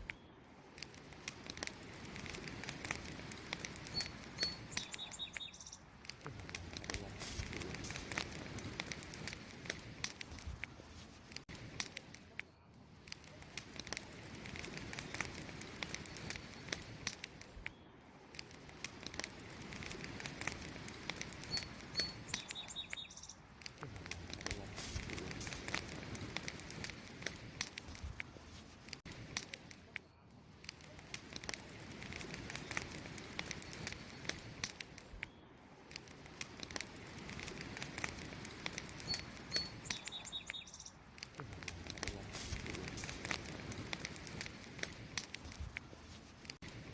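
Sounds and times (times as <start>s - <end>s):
campfire crackling and popping: 0.0s - 46.9s
bird chirps: 3.9s - 5.9s, 21.4s - 23.5s, 39.0s - 41.0s.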